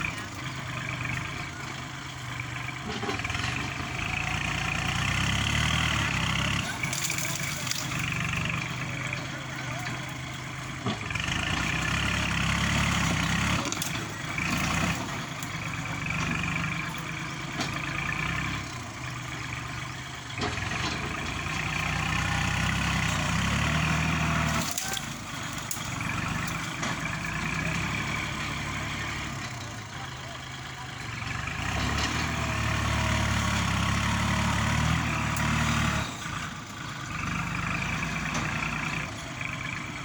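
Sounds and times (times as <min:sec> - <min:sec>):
tractor diesel engine under load: 0:00.0 - 0:40.0.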